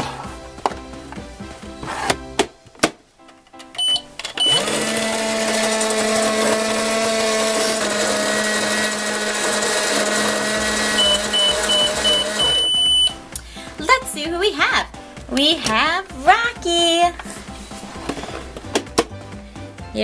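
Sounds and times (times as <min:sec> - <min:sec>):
short beeps: 0:03.8 - 0:04.6, 0:10.9 - 0:13.2
high beeps: 0:03.8 - 0:04.7, 0:10.7 - 0:13.3
electronic microwave hum: 0:03.8 - 0:13.2.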